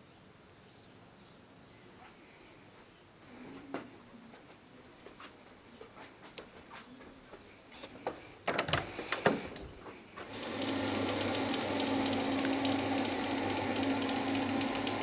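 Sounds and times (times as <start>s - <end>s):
sharp clicks and knocks: 7.8s - 10.4s
small motor humming: 10.3s - 15.0s.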